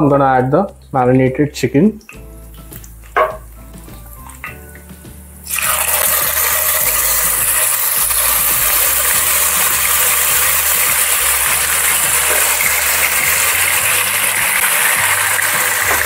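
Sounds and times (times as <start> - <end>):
chicken sizzling in hot oil: 5.4 - 16.0.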